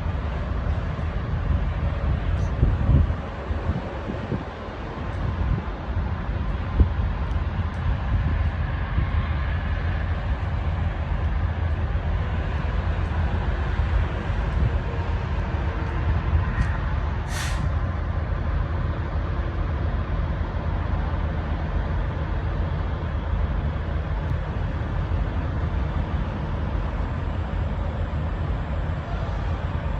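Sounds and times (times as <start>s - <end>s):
heavy truck rumbling: 0.0s - 29.9s
air hiss: 17.2s - 17.8s.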